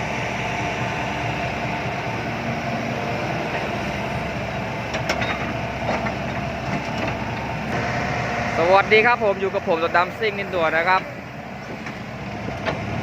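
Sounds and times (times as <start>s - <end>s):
heavy diesel machinery running: 0.0s - 13.0s.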